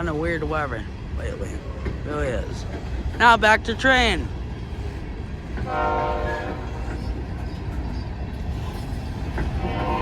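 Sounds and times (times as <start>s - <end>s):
moving train rumble: 0.0s - 10.0s
locomotive horn blasts: 5.7s - 6.7s, 9.6s - 10.0s.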